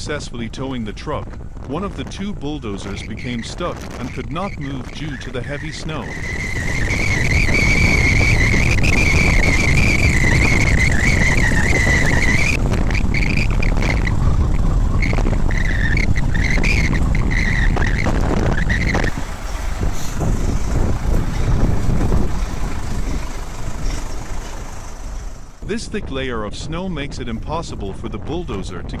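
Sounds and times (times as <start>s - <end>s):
high wavering squeal: 3.0s - 14.2s, 15.0s - 25.6s
diesel engine running hard: 3.8s - 25.8s.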